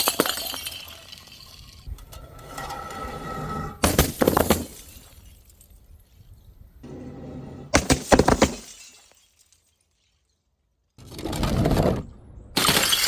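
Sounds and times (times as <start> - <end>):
glass crash: 0.0 - 1.8, 3.8 - 6.2, 7.8 - 10.4, 12.6 - 13.0
glass shattering: 0.0 - 1.9, 3.8 - 6.4, 7.8 - 10.4, 12.6 - 13.0.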